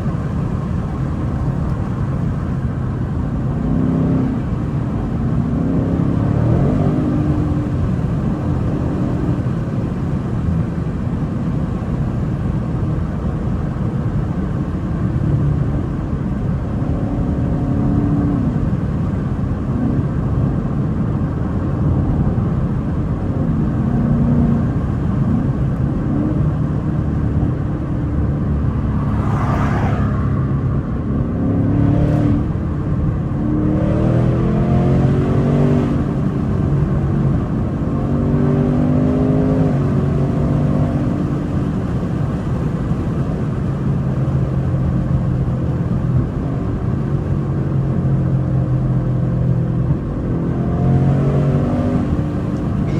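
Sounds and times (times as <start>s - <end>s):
car engine accelerating: 0.0s - 52.9s
brief rushing sound: 28.7s - 30.9s.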